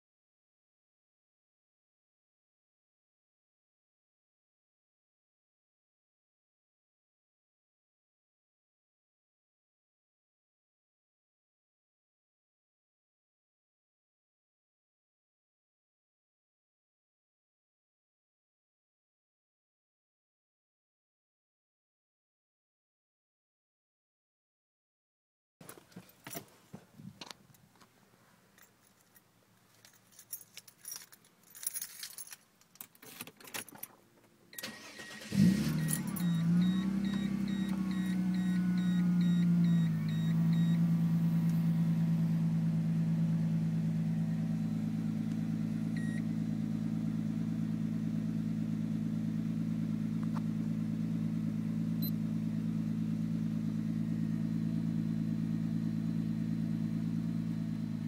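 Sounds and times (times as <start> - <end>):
keys jangling in ignition: 28.6 - 34.0, 34.8 - 36.4
engine cranking and starting: 34.6 - 38.8
high beeping chime: 35.8 - 40.8.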